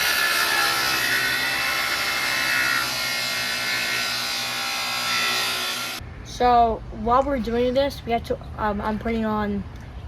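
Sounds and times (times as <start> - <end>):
table saw cutting wood: 0.0 - 6.0.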